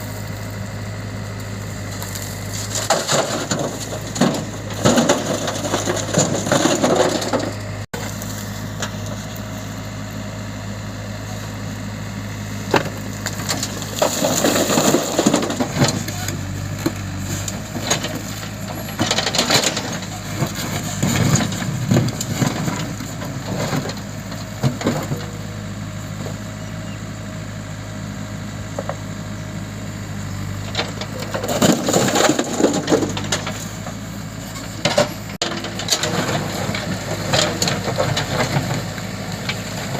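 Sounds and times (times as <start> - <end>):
heavy diesel engine running: 0.0 - 39.9
bucket scraping and crashing: 2.5 - 7.6, 13.4 - 25.3, 30.8 - 33.9, 34.6 - 39.0.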